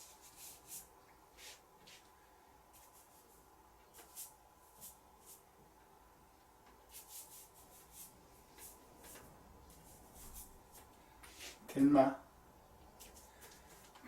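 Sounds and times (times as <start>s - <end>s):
ink brush swishing on paper: 0.0s - 2.1s, 2.7s - 5.4s, 6.9s - 11.7s.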